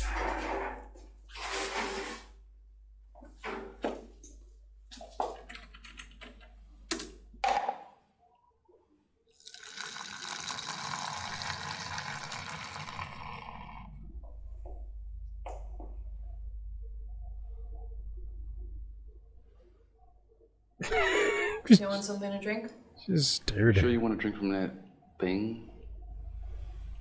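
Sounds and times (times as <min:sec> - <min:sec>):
machine pouring liquid into cup: 0:09.4 - 0:13.9.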